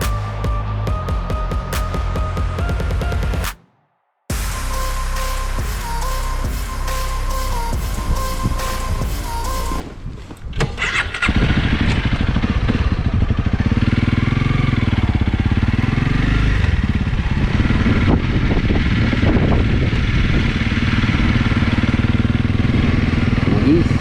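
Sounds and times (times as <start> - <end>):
motorcycle engine running: 11.3 - 24.0.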